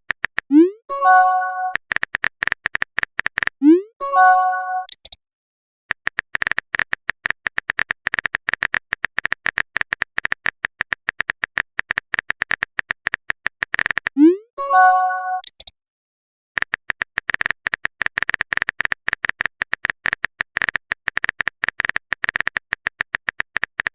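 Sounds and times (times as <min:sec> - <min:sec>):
phone keyboard typing clicks: 0:00.1 - 0:03.6, 0:05.9 - 0:14.2, 0:15.4 - 0:15.7, 0:16.6 - 0:23.9
multi-tone notification chime: 0:00.9 - 0:01.8, 0:04.0 - 0:04.9, 0:14.6 - 0:15.4.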